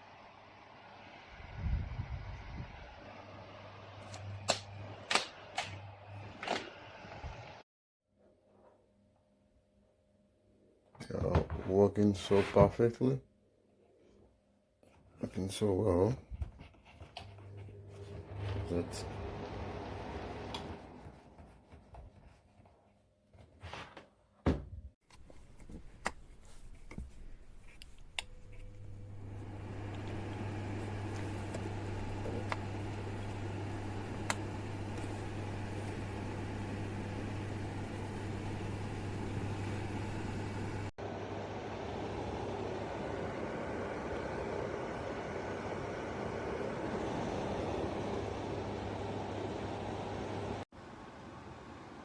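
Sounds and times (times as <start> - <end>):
fan heater humming: 15.2 - 22.6, 25.3 - 52.0.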